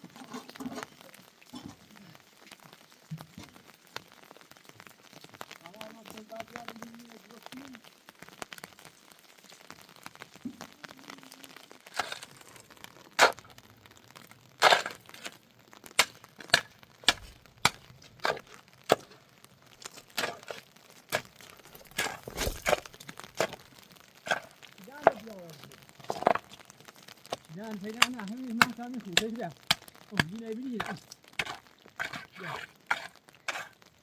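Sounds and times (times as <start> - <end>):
sharp cracks and knocks: 14.6 - 19.2, 19.8 - 25.3, 26.0 - 33.7.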